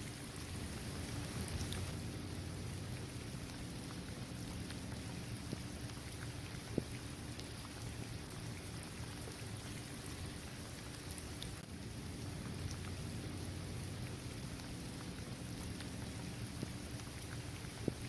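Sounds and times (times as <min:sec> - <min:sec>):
raindrops ticking: 0:00.0 - 0:18.0
steady rain: 0:00.0 - 0:18.0.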